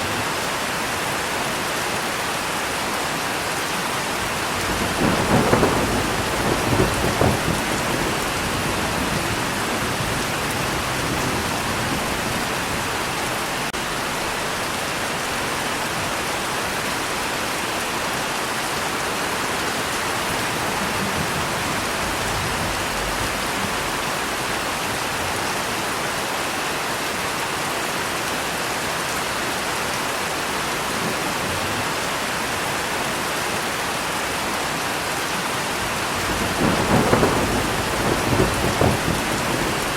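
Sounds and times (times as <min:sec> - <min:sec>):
steady rain falling: 0:00.0 - 0:39.9
thunder rumble: 0:04.2 - 0:14.5, 0:19.6 - 0:25.4, 0:35.8 - 0:39.9.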